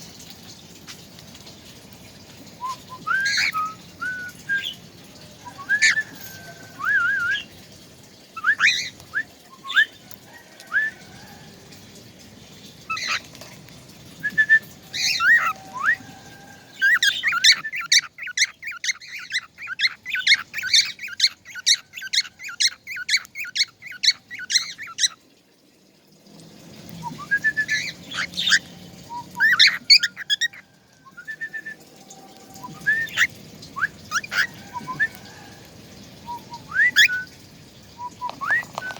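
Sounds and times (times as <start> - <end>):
songbird chirping and trilling: 2.6 - 13.3, 14.0 - 25.3, 26.9 - 38.9.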